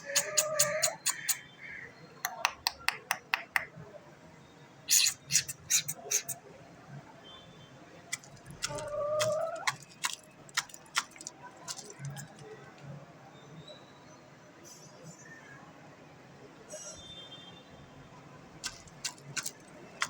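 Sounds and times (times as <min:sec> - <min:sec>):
chicken calling: 0:00.0 - 0:01.4, 0:04.9 - 0:06.4, 0:08.6 - 0:09.9
sharp clicks and taps: 0:02.3 - 0:03.7.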